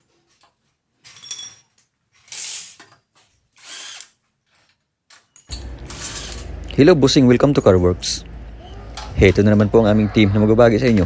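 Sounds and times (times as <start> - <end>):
power tool bursts: 2.3 - 2.8, 3.6 - 4.1, 5.5 - 6.6.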